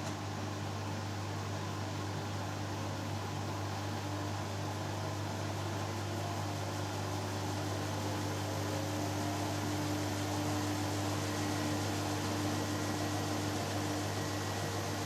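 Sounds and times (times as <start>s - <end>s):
washing machine spinning hum: 0.0s - 15.0s.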